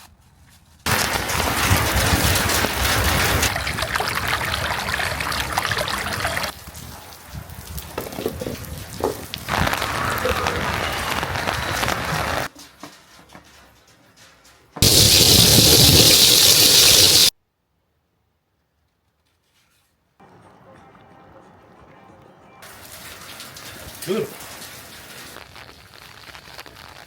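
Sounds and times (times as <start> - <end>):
steady rain: 0.9 - 12.5, 14.8 - 17.3, 22.6 - 27.0.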